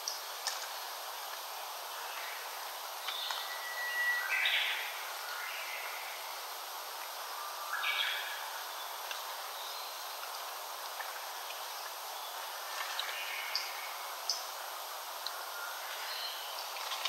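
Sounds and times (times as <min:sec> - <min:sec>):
steady background hiss: 0:00.0 - 0:17.0
songbird singing: 0:02.0 - 0:06.4, 0:07.2 - 0:10.3, 0:15.2 - 0:16.8.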